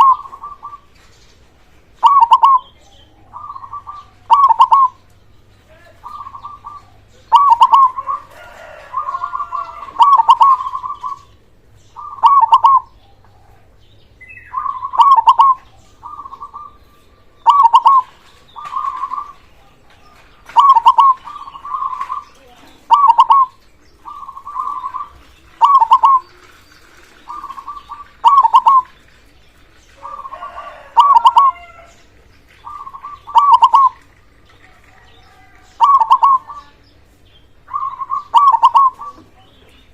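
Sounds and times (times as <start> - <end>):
dove cooing: 0.0 - 1.0, 2.0 - 5.1, 5.9 - 11.4, 12.0 - 29.2, 29.9 - 36.8, 37.6 - 39.9
faint bird calls: 2.0 - 29.0, 29.9 - 37.0, 37.6 - 39.9.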